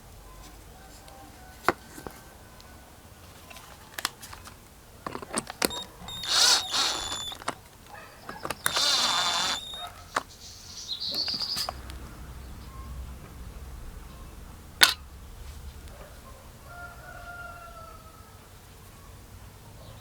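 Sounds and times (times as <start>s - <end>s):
small power drill running: 5.1s - 10.3s.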